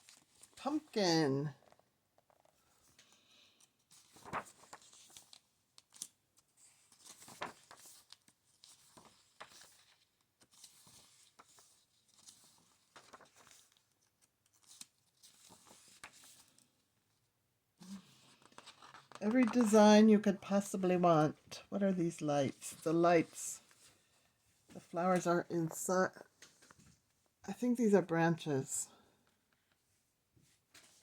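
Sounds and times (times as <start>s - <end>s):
book pages turning: 3.6s - 16.7s, 17.9s - 20.9s.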